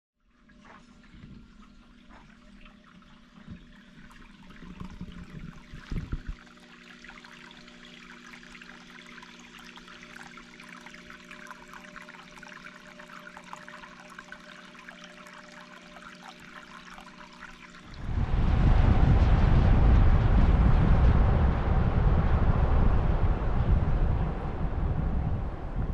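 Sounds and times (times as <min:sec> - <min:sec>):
faint steady hum: 0:00.2 - 0:25.9
rain pattering: 0:17.9 - 0:25.9
loud rushing sound: 0:18.0 - 0:25.9.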